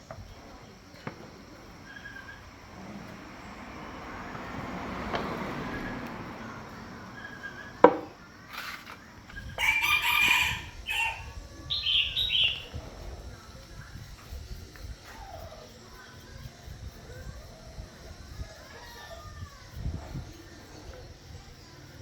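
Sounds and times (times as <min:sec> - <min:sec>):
rooster crowing: 0:09.3 - 0:12.6, 0:18.4 - 0:19.8.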